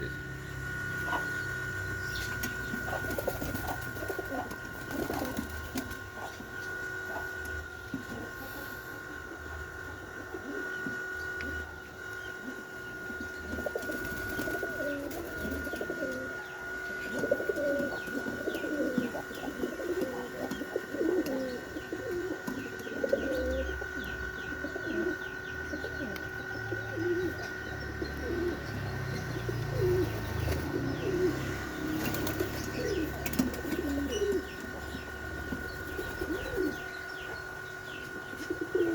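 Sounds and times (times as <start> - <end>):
doves cooing: 0.0 - 38.9
steady high-pitched hum: 0.0 - 38.9.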